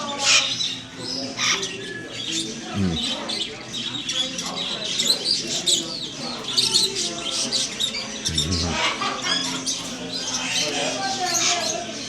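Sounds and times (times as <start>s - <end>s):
caged birds chirping: 0.0s - 12.0s.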